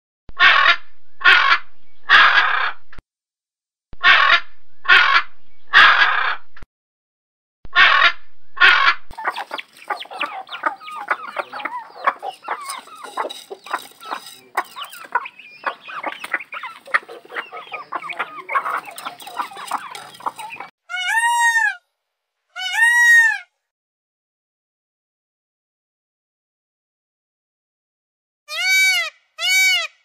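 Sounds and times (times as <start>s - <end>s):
macaws squawking: 4.0s - 6.3s, 7.8s - 21.8s, 22.6s - 23.4s
flock of chickens clucking: 9.1s - 20.7s.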